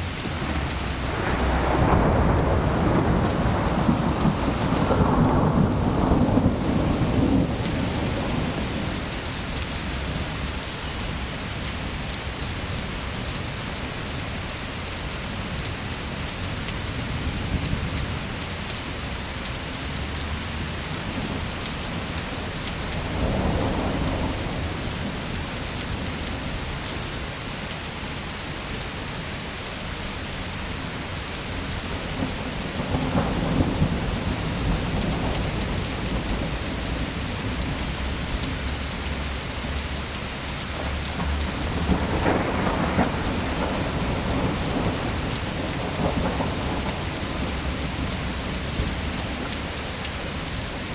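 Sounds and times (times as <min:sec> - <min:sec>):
distant thunder rumbling: 0:00.0 - 0:11.2, 0:21.0 - 0:26.7, 0:31.7 - 0:39.9, 0:40.7 - 0:50.9
heavy rain: 0:00.0 - 0:50.9.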